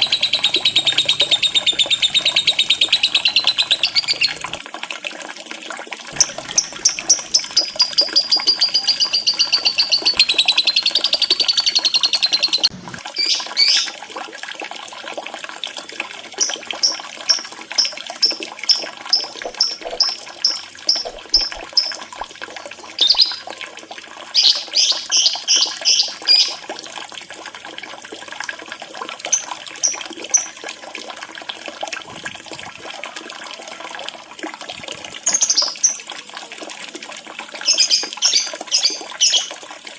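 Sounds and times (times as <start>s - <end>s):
birds chirping and trilling: 0.0s - 4.6s, 6.2s - 13.9s, 18.7s - 22.1s, 23.0s - 23.4s, 24.4s - 26.6s
running water trickling: 0.0s - 39.9s.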